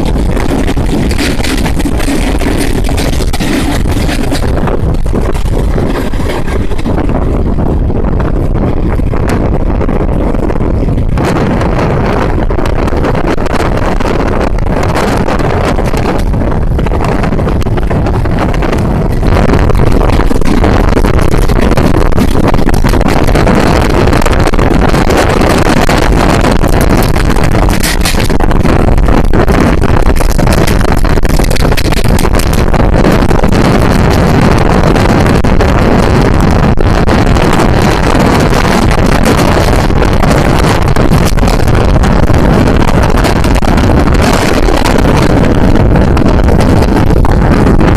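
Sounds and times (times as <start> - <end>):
wind buffeting microphone: 0.0 - 47.9
passenger train running: 2.3 - 9.7.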